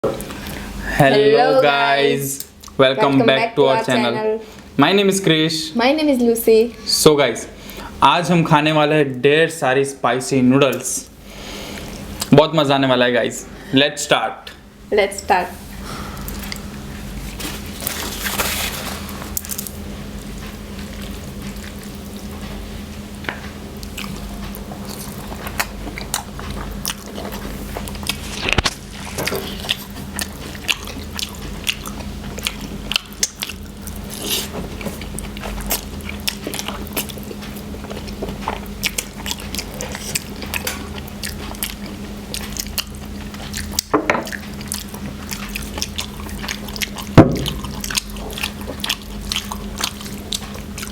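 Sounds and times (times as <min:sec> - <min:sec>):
steady low hum: 0:00.0 - 0:50.9
chewing and wet mouth noises: 0:11.7 - 0:12.4, 0:16.2 - 0:18.4, 0:19.1 - 0:50.9.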